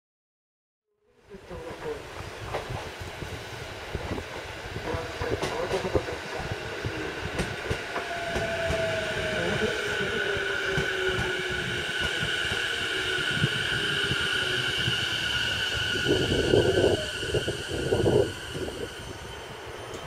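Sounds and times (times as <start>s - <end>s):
steady high-pitched tones: 6.8s - 20.0s.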